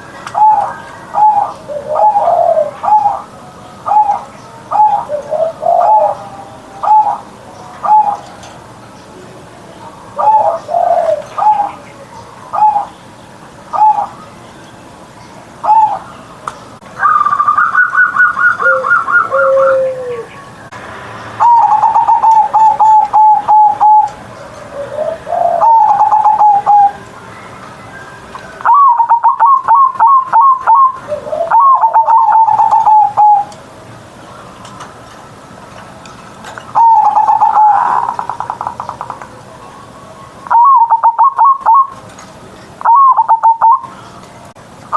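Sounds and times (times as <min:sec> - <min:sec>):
dove cooing: 0:00.0 - 0:08.6, 0:10.0 - 0:13.0, 0:13.7 - 0:14.2, 0:15.6 - 0:16.1, 0:17.0 - 0:20.4, 0:21.4 - 0:27.0, 0:28.6 - 0:33.6, 0:36.7 - 0:39.4, 0:40.4 - 0:42.0, 0:42.8 - 0:44.0.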